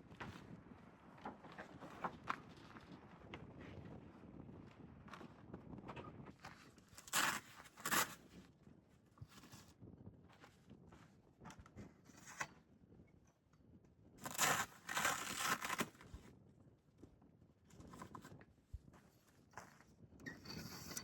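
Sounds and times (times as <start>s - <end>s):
loud rustling or tearing: 7.0s - 8.2s, 14.2s - 16.1s.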